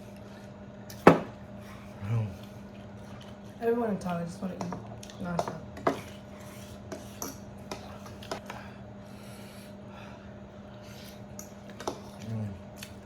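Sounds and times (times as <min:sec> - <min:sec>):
steady low hum: 0:00.0 - 0:13.0
chewing and wet smacks: 0:05.0 - 0:05.2, 0:11.4 - 0:13.0.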